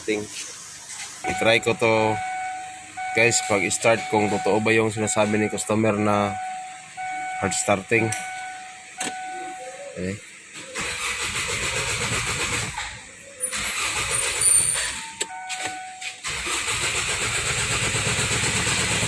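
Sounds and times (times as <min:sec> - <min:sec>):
starter cranking diesel engine: 0:10.5 - 0:19.0.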